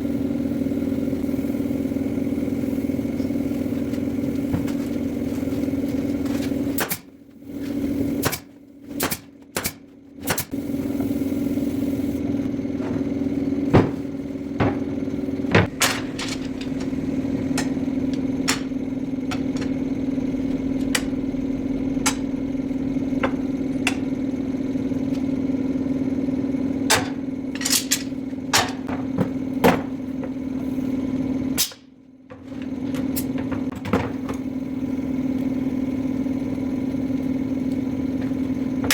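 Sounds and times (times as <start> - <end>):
machine motor humming: 0.0 - 38.9
knocks and clatter on wood: 12.8 - 16.7.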